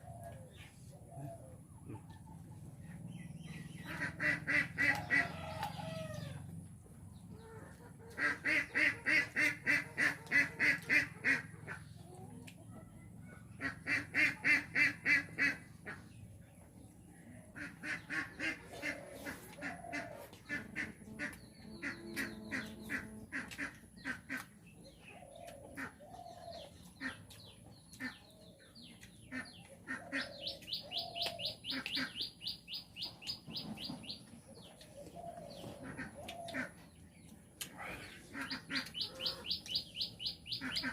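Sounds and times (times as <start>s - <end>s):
birds calling rapid notes: 29.0s - 34.3s, 35.0s - 40.9s.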